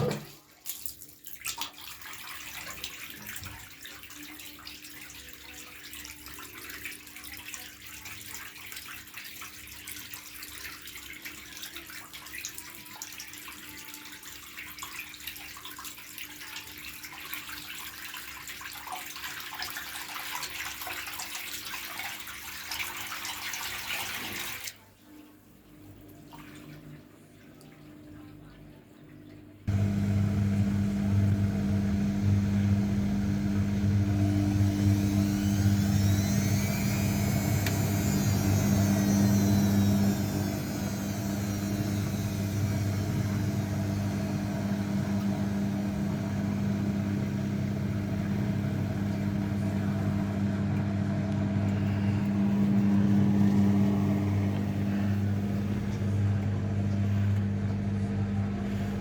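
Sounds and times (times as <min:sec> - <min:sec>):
washing machine motor humming: 0:00.0 - 0:00.3, 0:29.7 - 0:59.0
washing machine drum whine: 0:29.7 - 0:59.0.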